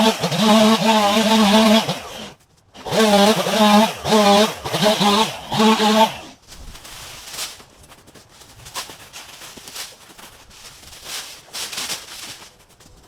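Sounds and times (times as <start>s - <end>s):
rustling and crunching of brush: 6.2s - 13.0s.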